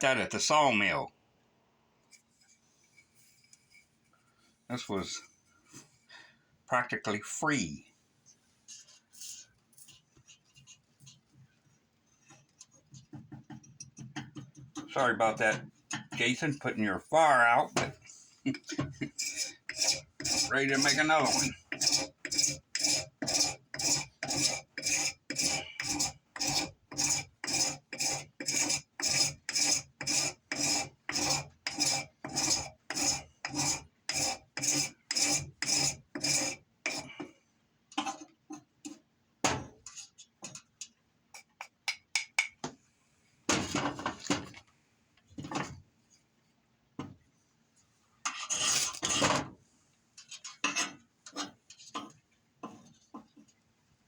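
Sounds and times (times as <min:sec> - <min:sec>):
metal edge scraping wood: 0:18.8 - 0:37.2, 0:48.3 - 0:49.4, 0:50.3 - 0:52.1.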